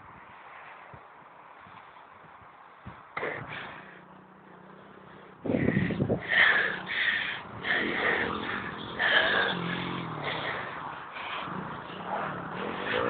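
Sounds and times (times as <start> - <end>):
pit bike engine revving: 3.2 - 13.0.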